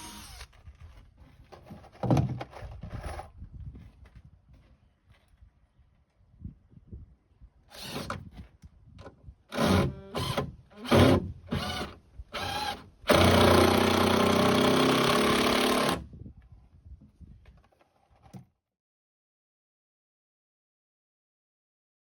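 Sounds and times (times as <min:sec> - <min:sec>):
power drill running: 0:00.0 - 0:00.6, 0:07.7 - 0:08.1, 0:09.5 - 0:16.0.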